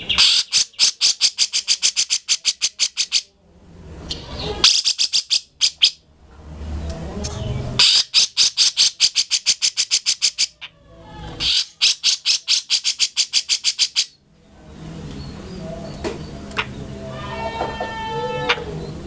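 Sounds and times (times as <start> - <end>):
bird chatter: 0.0 - 3.3, 4.1 - 6.0, 7.3 - 10.7, 11.3 - 14.2
bird harsh rapid calls: 0.0 - 3.3, 4.1 - 6.0, 7.3 - 10.7, 11.4 - 14.2.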